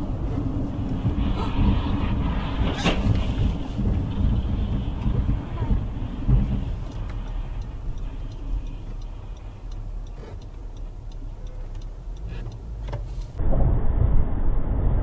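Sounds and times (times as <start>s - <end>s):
low vehicle rumble: 0.0s - 15.0s
faint regular ticking: 4.4s - 13.4s.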